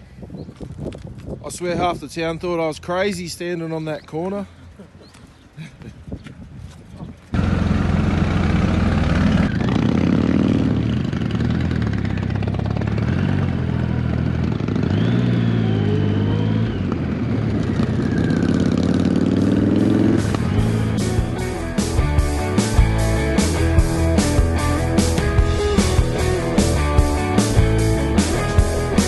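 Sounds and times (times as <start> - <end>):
motorcycle engine accelerating: 7.3 - 29.0.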